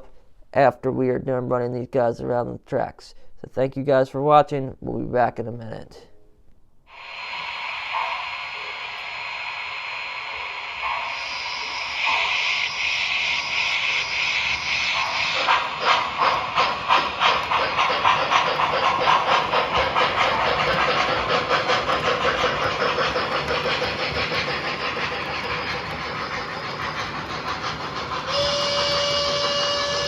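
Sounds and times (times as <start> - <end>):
model steam locomotive chuffing: 6.9 - 30.0
steam hiss: 6.9 - 30.0.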